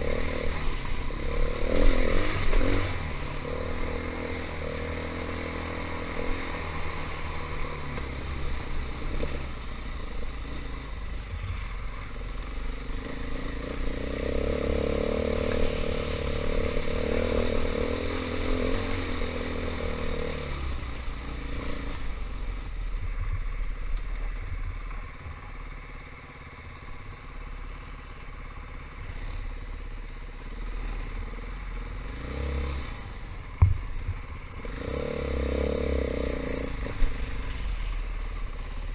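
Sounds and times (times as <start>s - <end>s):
dirt bike engine revving: 0.0s - 7.6s, 13.0s - 22.1s, 34.6s - 37.6s.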